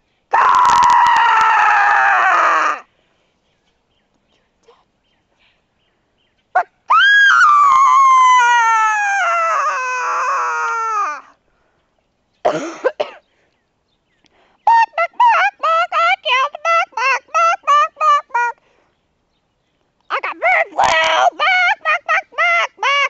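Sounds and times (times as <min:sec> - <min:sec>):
person wailing and yelping: 0:00.3 - 0:02.9, 0:06.6 - 0:11.3, 0:14.7 - 0:18.6, 0:20.1 - 0:23.0.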